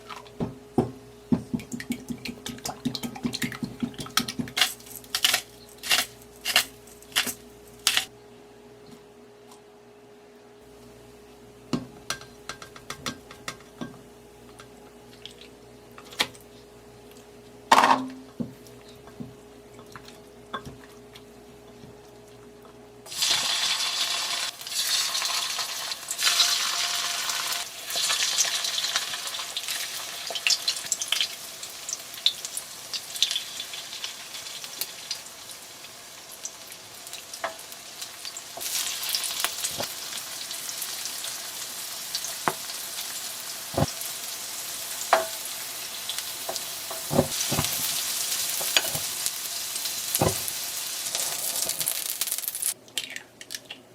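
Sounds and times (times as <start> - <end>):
oysters sizzling in oil: 23.0 - 52.8.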